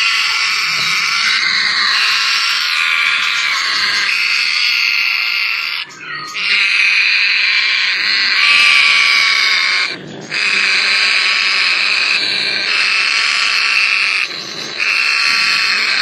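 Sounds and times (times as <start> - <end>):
parrots chattering and calling: 0.0 - 16.0.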